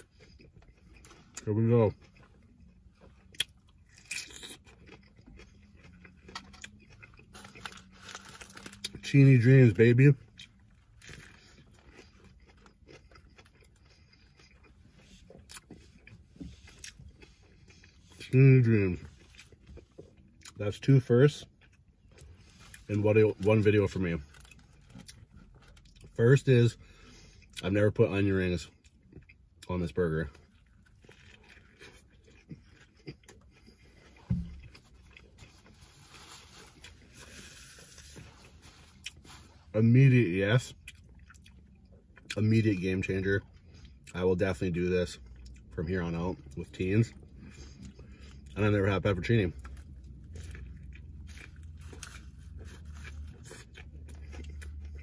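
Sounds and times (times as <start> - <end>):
biting into burger: 0.0 - 9.0, 49.5 - 55.0
faint chewing: 0.0 - 39.8, 40.6 - 55.0.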